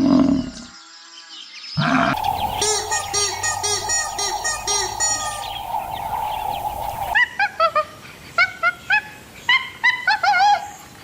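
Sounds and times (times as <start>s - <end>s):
steady hiss: 2.2s - 7.2s.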